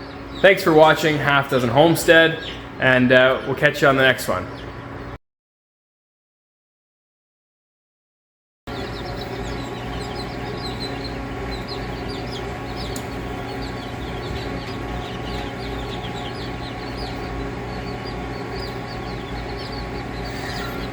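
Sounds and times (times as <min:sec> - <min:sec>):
chicks peeping: 0:00.0 - 0:05.2, 0:08.7 - 0:20.9
steady low hum: 0:00.0 - 0:05.2, 0:08.7 - 0:20.9.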